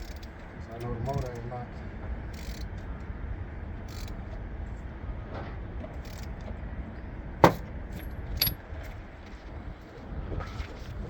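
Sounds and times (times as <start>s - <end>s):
sharp knocks: 7.4s - 7.7s.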